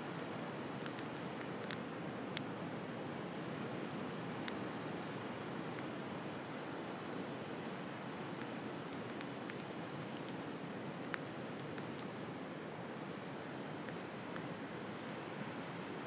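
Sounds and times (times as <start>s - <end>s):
bonfire crackling and popping: 0.1s - 3.2s, 7.3s - 13.0s.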